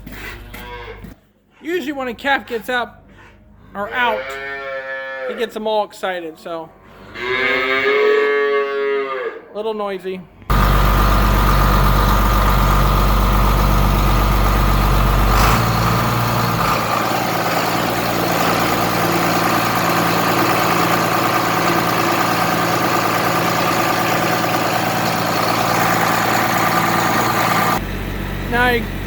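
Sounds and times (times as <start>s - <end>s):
engine knock: 10.5s - 27.8s
diesel engine idling: 10.5s - 29.0s.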